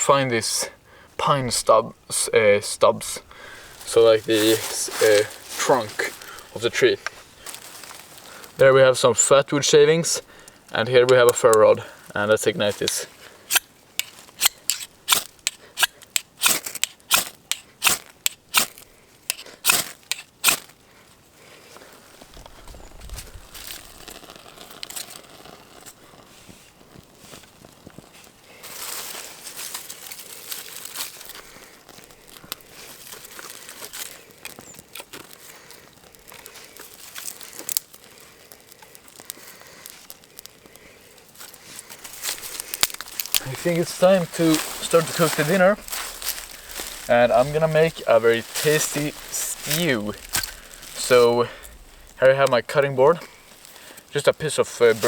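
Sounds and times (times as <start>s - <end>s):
campfire crackling and snapping: 0.0s - 55.0s
ferrocerium rod scraped with striker: 12.8s - 20.7s.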